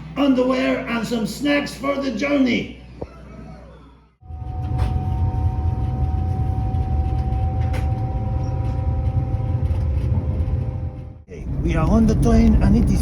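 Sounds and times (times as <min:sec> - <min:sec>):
constant hum: 0:04.2 - 0:13.0
train rumble: 0:04.2 - 0:13.0.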